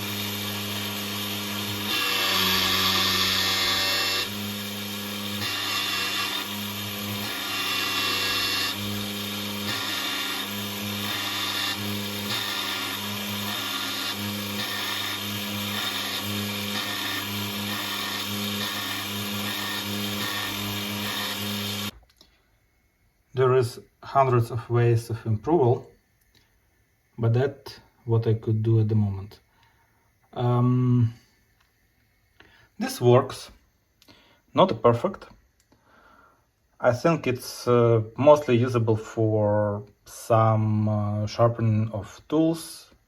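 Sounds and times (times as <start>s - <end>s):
small electric motor spinning: 0.0s - 21.9s.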